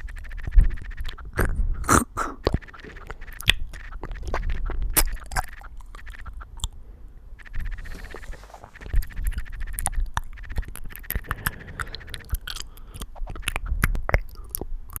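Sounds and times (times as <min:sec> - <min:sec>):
buzzy tone: 0:00.0 - 0:12.5.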